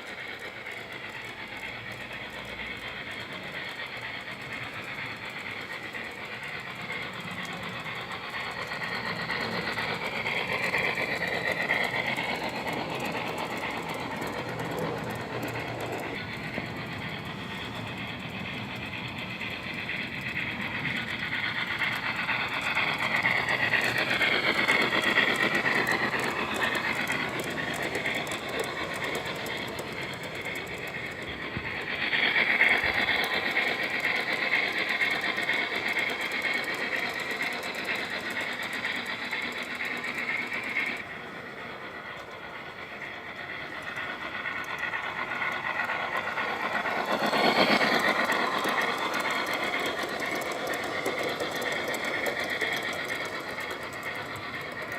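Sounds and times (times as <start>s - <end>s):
model train running on track: 0.0s - 54.9s.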